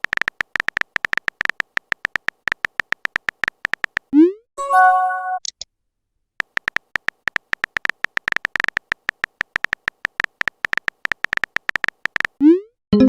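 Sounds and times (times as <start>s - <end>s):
phone keyboard typing clicks: 0.0s - 4.1s, 6.4s - 12.4s.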